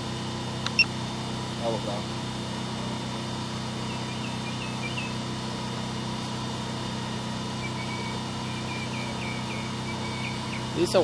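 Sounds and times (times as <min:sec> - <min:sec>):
motor humming: 0:00.0 - 0:11.0
faint bird chirps: 0:03.9 - 0:05.2, 0:07.6 - 0:10.7.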